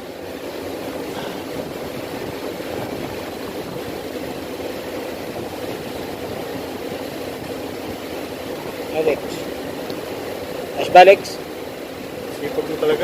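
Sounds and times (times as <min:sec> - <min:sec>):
motor running drone: 0:00.0 - 0:13.0.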